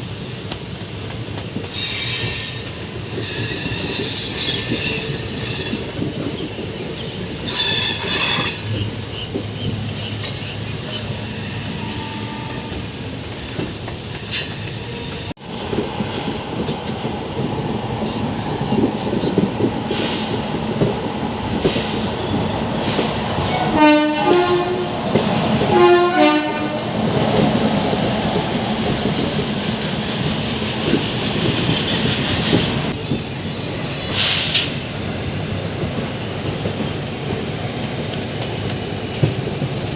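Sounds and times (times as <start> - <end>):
train rumble and wheel clatter: 0.0 - 39.9
train horn blasts: 11.6 - 12.9, 23.4 - 25.0, 25.6 - 27.0.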